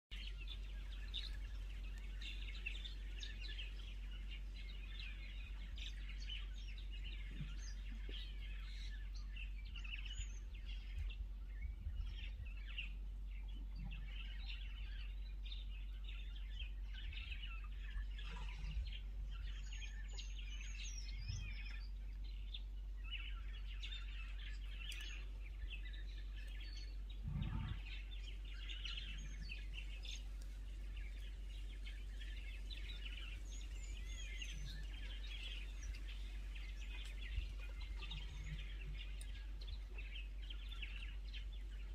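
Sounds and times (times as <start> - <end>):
birds chirping: 0.1 - 41.9
steady low hum: 0.1 - 41.9
soft low thuds: 27.0 - 30.8.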